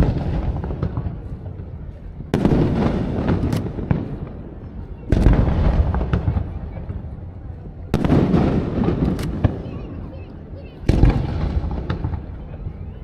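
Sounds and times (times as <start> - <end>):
fireworks crackling pops: 0.0 - 4.4, 5.1 - 7.1, 8.0 - 9.8, 10.9 - 12.7
fireworks booming: 0.0 - 7.3, 7.9 - 10.0, 10.8 - 12.8
rumbling echo: 0.0 - 13.0.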